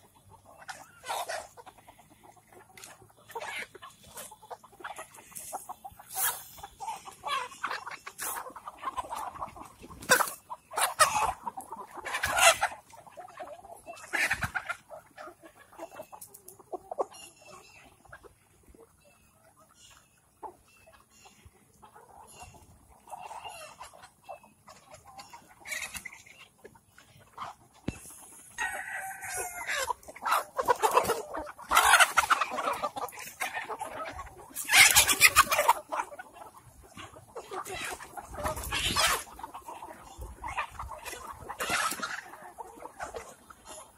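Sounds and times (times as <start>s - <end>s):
chickens clucking: 0.0s - 43.9s
rooster crowing: 28.6s - 29.7s.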